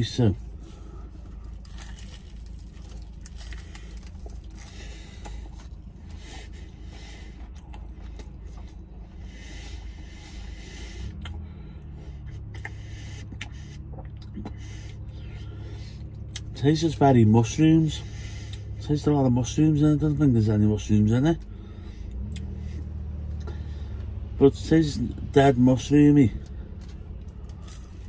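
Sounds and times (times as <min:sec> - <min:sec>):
car interior hum: 0:00.0 - 0:28.0
man chewing pastry: 0:00.5 - 0:16.5, 0:21.4 - 0:24.2, 0:26.4 - 0:28.0.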